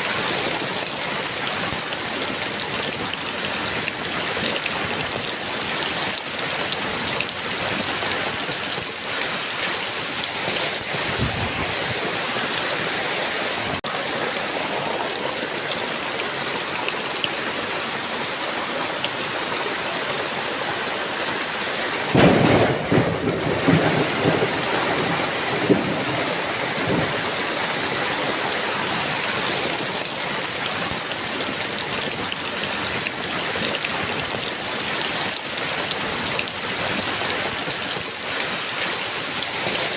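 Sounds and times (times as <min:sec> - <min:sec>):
heavy rain falling: 0:00.0 - 0:39.9
loud thunderclap rumbling: 0:10.6 - 0:12.2, 0:22.1 - 0:27.5.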